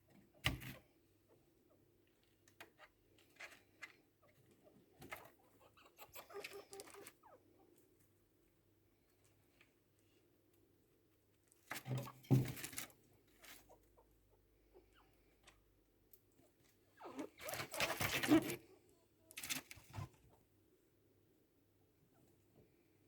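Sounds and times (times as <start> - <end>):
chinchillas scuffling and calling: 0.3 - 8.1, 11.4 - 20.5.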